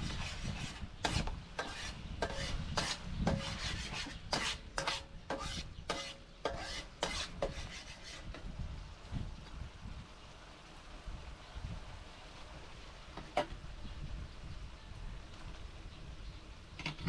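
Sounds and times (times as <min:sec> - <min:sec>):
utensil scraping metal pot: 0:00.0 - 0:08.4.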